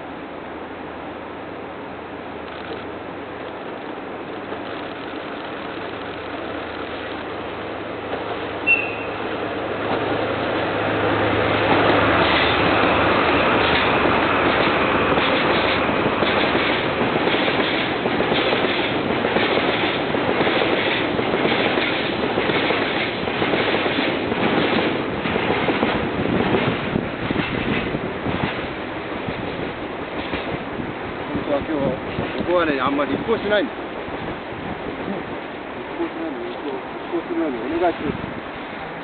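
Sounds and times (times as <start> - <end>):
diesel locomotive hum: 0.0 - 39.0
train wheels clattering over rails: 8.0 - 34.3.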